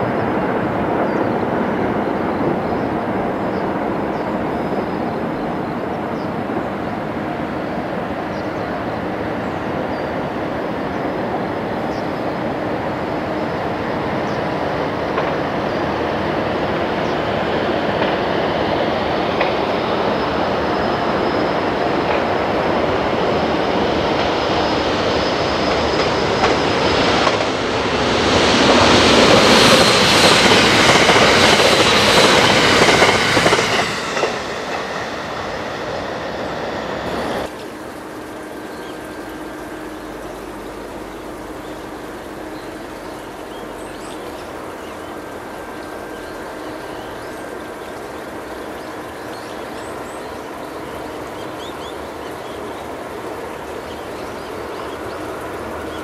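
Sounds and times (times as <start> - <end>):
electric train passing: 0.0 - 56.0.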